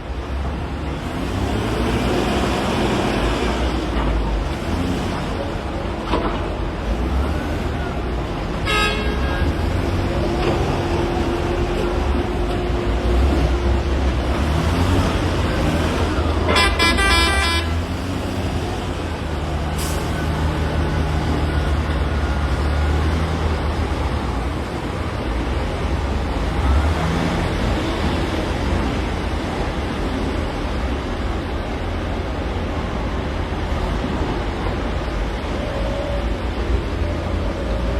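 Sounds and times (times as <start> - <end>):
diesel machinery droning: 0.0 - 30.8
horn sounding: 8.6 - 9.7, 16.4 - 18.0.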